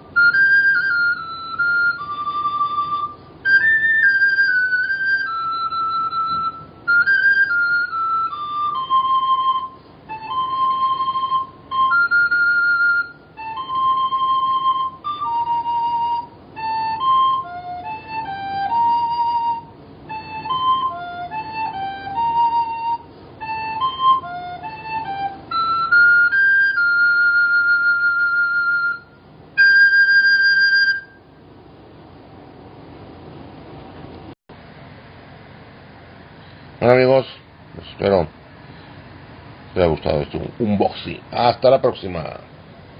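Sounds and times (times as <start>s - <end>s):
recorder playing a carol melody: 0.0s - 31.3s.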